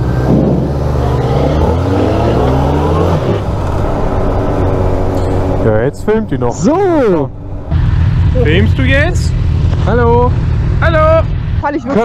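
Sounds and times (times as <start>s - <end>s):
motorcycle engine accelerating: 0.0s - 11.5s.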